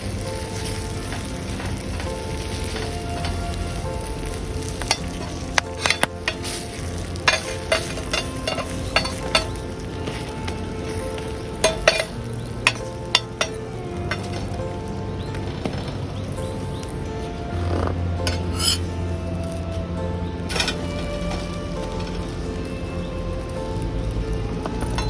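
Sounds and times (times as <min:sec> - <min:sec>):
food sizzling in a pan: 0:00.0 - 0:15.1, 0:20.4 - 0:25.0
utensil clicking against pan: 0:04.9 - 0:09.7.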